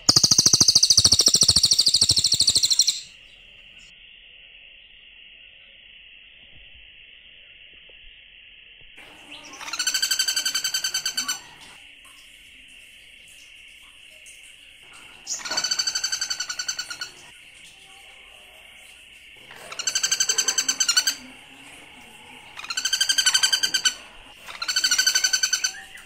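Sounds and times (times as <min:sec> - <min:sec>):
bird chattering calls: 0:00.0 - 0:03.2, 0:09.3 - 0:11.6, 0:14.9 - 0:17.3, 0:19.6 - 0:21.4, 0:22.5 - 0:26.0.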